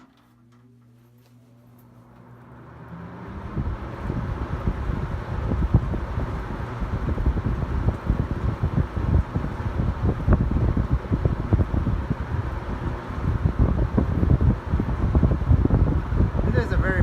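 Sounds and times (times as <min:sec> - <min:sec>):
box fan motor hum: 0:00.0 - 0:17.0
fan air rushing: 0:00.0 - 0:17.0
wind noise on microphone: 0:03.0 - 0:17.0.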